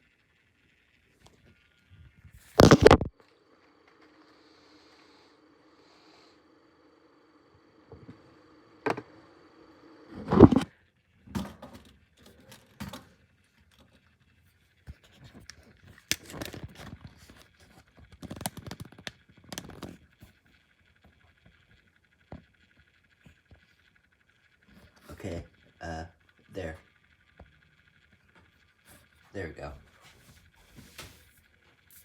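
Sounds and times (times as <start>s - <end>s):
objects clicking and clattering: 15.1s - 20.0s.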